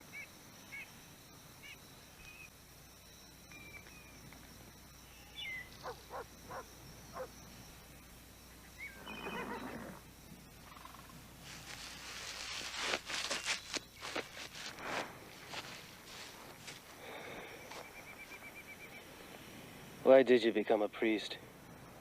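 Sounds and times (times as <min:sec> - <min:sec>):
bird chirps: 0:05.0 - 0:07.3, 0:08.6 - 0:09.8
hooves clopping on ground: 0:11.4 - 0:18.4.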